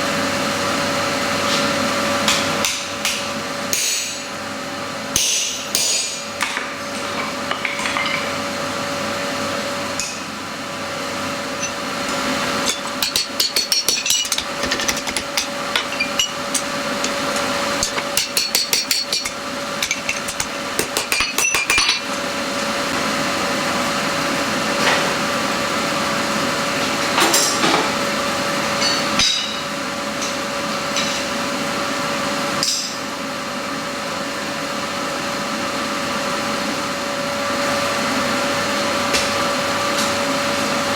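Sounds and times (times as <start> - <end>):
hammer striking steel on anvil: 5.2 - 6.3, 11.6 - 22.2
steady hum: 10.7 - 23.4.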